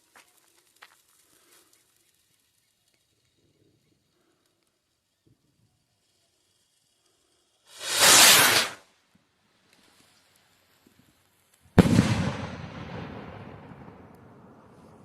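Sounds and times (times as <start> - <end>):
firework rocket launching hiss: 0.0 - 9.1, 10.8 - 15.0
firework bang echoing: 7.8 - 8.8, 11.8 - 15.0.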